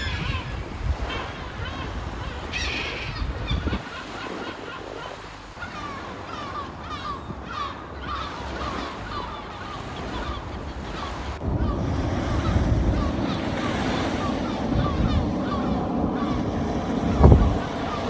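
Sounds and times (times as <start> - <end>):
wind on microphone: 0.0 - 4.0, 10.2 - 18.0
gulls calling: 0.0 - 18.0
surf: 0.0 - 18.0.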